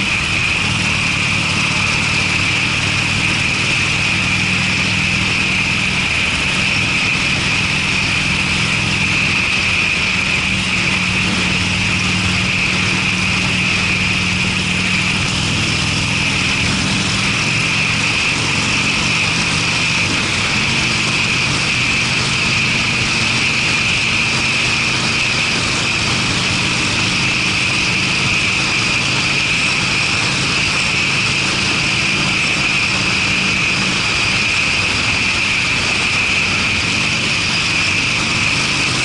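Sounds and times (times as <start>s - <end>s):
motorcycle engine running steadily: 0.0s - 39.0s.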